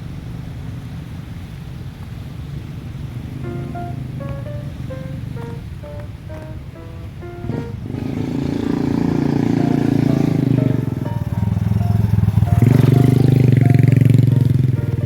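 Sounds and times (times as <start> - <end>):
small motorcycle engine running: 3.2 - 6.0, 7.1 - 15.0.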